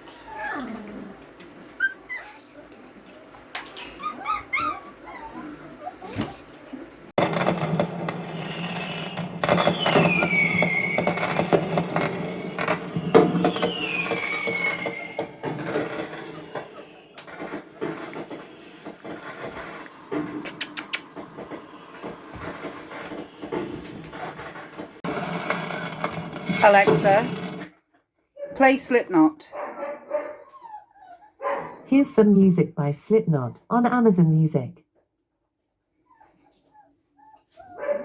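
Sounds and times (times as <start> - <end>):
fireworks crackling and popping: 7.2 - 27.4
falling firework whistles: 8.4 - 17.2.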